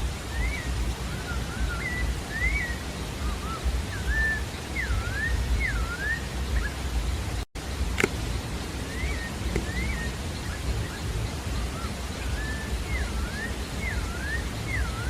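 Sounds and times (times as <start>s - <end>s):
steady rushing background noise: 0.0s - 15.0s
thrush singing whistled notes: 0.0s - 15.0s.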